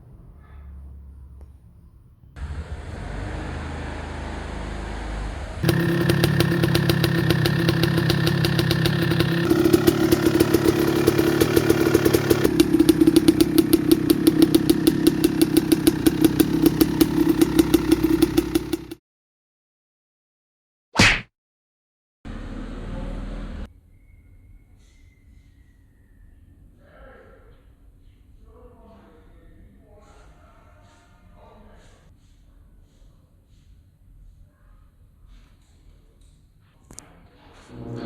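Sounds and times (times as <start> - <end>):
two-stroke dirt bike engine: 2.4 - 19.0.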